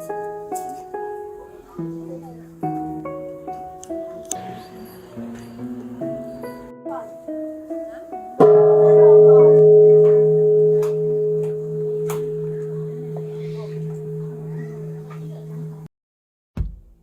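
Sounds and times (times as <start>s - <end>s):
struck bell ringing: 4.4s - 6.7s, 8.4s - 15.9s.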